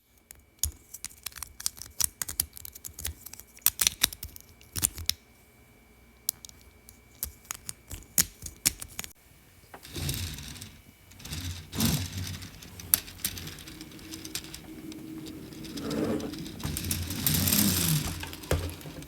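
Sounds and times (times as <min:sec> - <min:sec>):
plastic pieces clicking: 0:09.8 - 0:19.0
rummaging through plastic pieces: 0:09.8 - 0:19.0.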